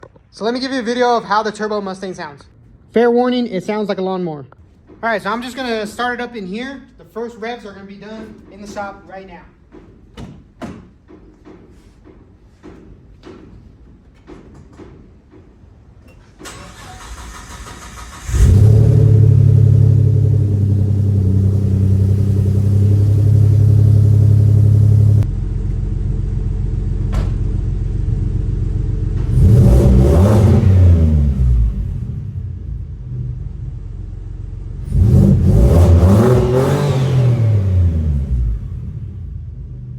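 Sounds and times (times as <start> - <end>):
car engine starting and idling: 16.2 - 39.9
car engine revving: 16.7 - 25.8, 27.6 - 39.9.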